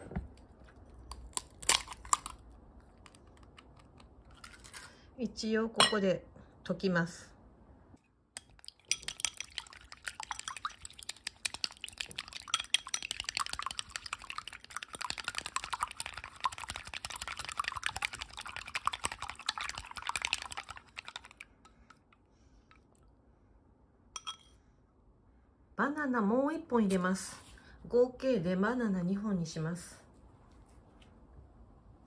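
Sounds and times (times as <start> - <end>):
glass clink: 5.8 - 6.0, 24.2 - 24.6
chopsticks beating eggs in glass: 8.4 - 21.5.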